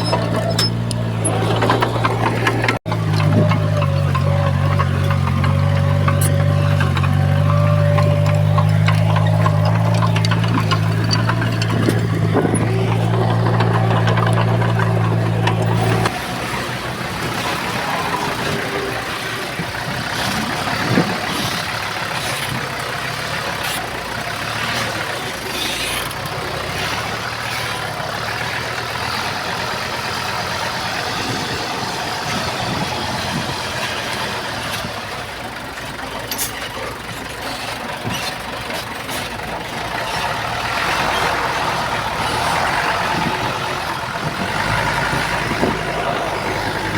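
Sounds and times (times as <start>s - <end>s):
sharp engine knocks: 0.0s - 16.2s
diesel engine of heavy machinery: 0.0s - 46.9s.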